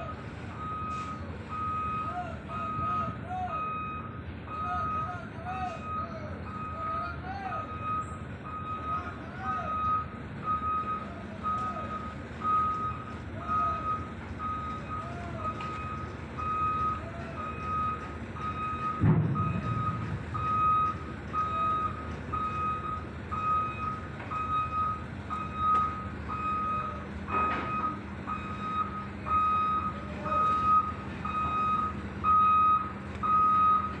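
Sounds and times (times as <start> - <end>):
diesel engine running: 0.0 - 34.0
travel alarm beeping: 0.0 - 34.0
low thud: 19.0 - 20.5.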